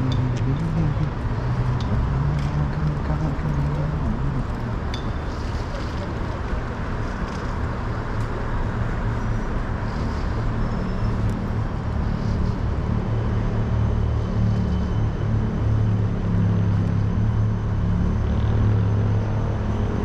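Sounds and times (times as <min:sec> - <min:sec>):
rush of passing traffic: 0:00.0 - 0:20.0
vehicle engines humming: 0:00.0 - 0:20.0.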